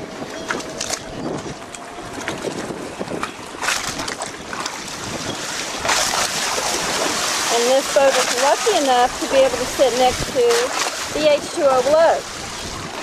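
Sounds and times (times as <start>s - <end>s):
choppy water lapping: 0.0s - 13.0s
wind buffeting microphone: 0.0s - 13.0s.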